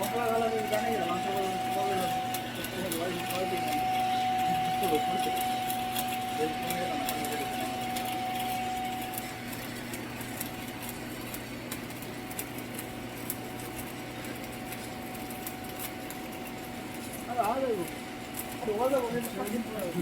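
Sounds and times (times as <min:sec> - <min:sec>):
steady tonal hum: 0:00.0 - 0:20.0
faint crackle of clicks: 0:07.0 - 0:19.9.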